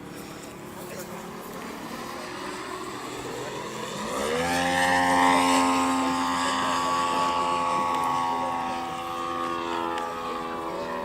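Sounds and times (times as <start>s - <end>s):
model plane propeller engine revving: 0.0s - 11.0s.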